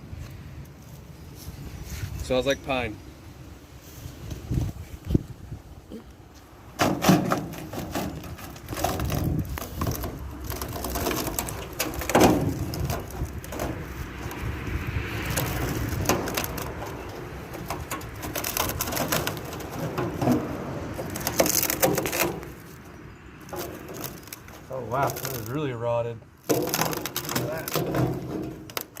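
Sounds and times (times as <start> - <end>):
rotted wood cracking and splintering: 6.8 - 25.7, 26.3 - 29.0.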